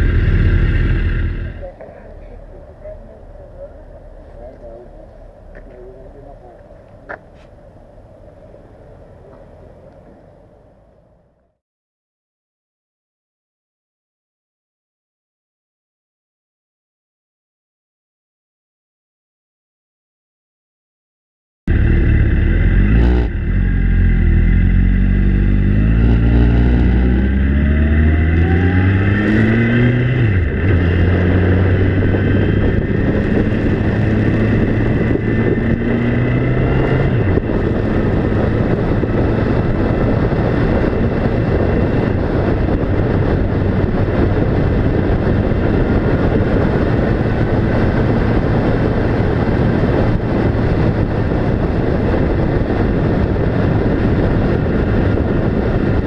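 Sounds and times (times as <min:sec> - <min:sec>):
vehicle engine accelerating: 0:00.0 - 0:06.3, 0:21.7 - 0:56.0
road noise: 0:00.0 - 0:11.6, 0:21.7 - 0:56.0.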